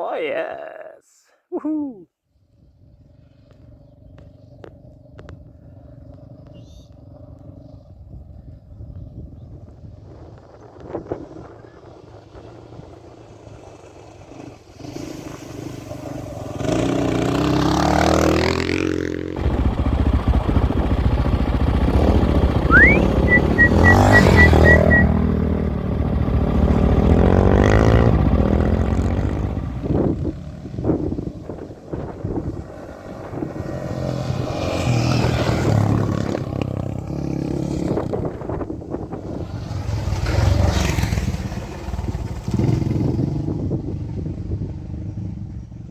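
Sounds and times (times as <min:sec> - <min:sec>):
dirt bike engine revving: 0:15.9 - 0:30.1.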